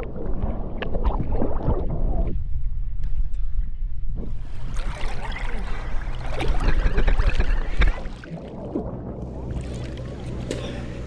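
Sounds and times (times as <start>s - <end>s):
water splashing and bubbling: 0.0s - 2.6s, 4.2s - 11.0s
low boat engine hum: 4.2s - 11.0s.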